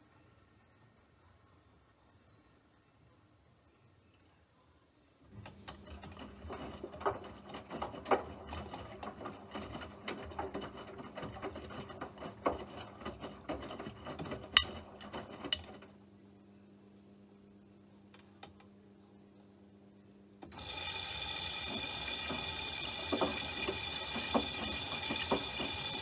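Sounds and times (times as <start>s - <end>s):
small machine humming: 20.6s - 26.0s.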